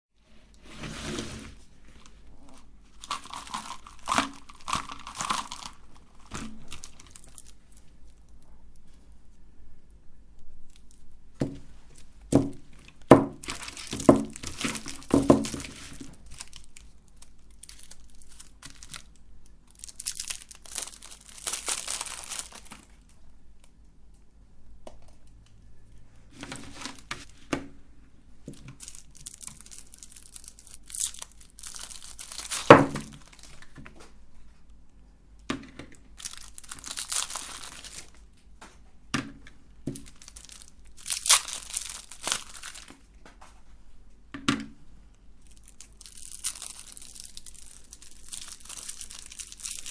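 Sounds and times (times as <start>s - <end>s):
plastic wrappers crinkling and tearing: 1.8s - 9.4s, 10.4s - 23.7s, 26.3s - 27.5s, 28.4s - 34.2s, 35.6s - 38.8s, 39.4s - 43.6s, 45.3s - 49.9s.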